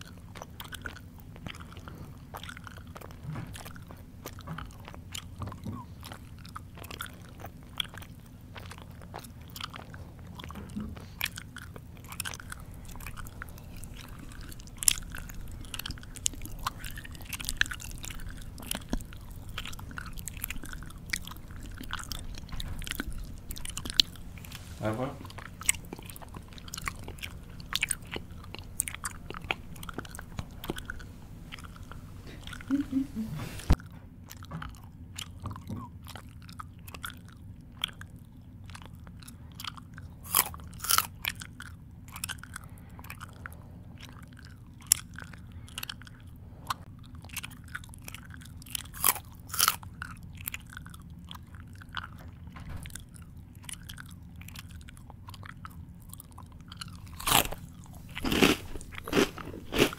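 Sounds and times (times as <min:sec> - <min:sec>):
person chewing crunchy food: 0:00.0 - 0:59.9.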